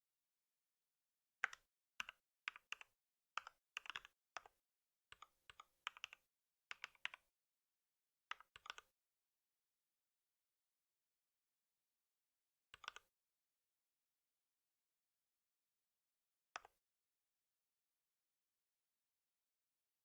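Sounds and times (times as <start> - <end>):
typing on a computer keyboard: 1.4 - 4.5, 5.2 - 7.2, 12.8 - 13.1.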